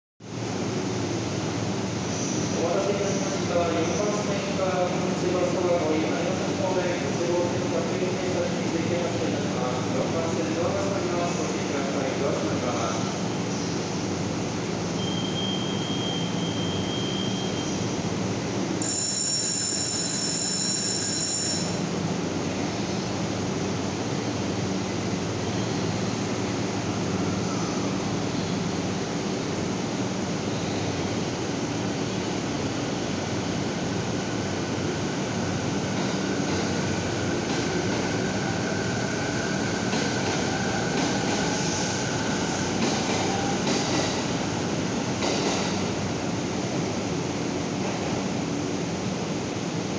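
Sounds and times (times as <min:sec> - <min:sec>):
high electronic signal tone: 0:18.8 - 0:21.8.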